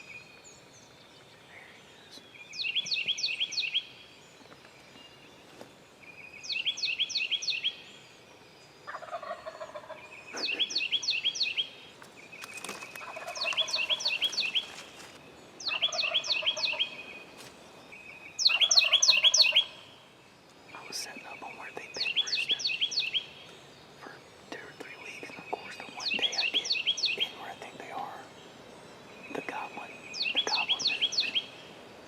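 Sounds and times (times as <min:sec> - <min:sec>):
songbird singing high phrase: 0:00.0 - 0:04.1, 0:06.0 - 0:08.0, 0:09.6 - 0:17.3, 0:17.9 - 0:20.1, 0:20.7 - 0:32.0
turkey gobbling: 0:08.9 - 0:10.0, 0:13.0 - 0:14.3, 0:15.7 - 0:17.0, 0:18.5 - 0:19.8.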